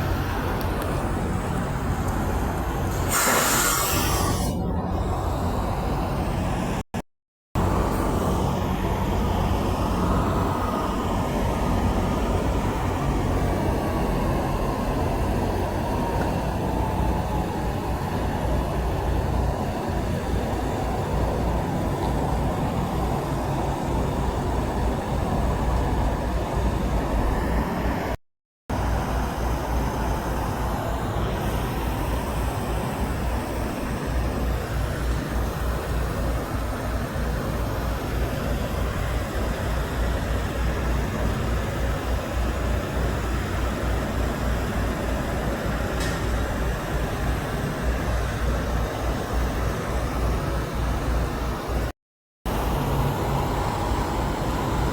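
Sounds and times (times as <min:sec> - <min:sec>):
road traffic rumble: 0:00.0 - 0:06.8, 0:07.6 - 0:51.9.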